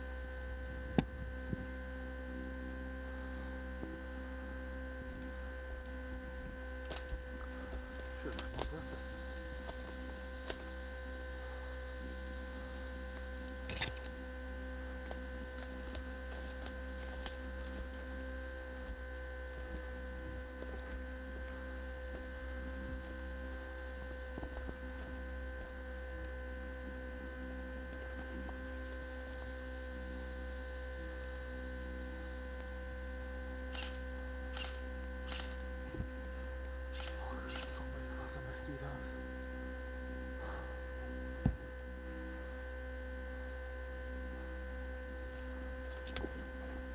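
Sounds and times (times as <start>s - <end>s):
electrical hum: 0.0s - 46.9s.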